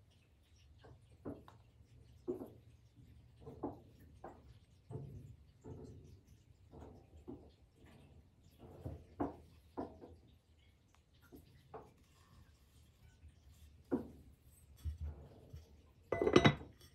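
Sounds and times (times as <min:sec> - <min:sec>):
objects being handled: 0:13.9 - 0:16.9.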